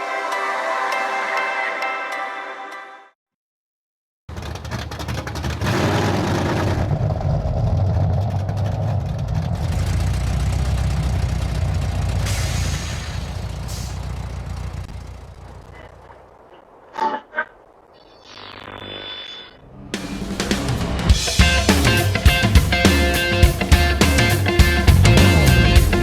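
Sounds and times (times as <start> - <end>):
car engine running: 4.3 - 16.4, 19.7 - 26.0.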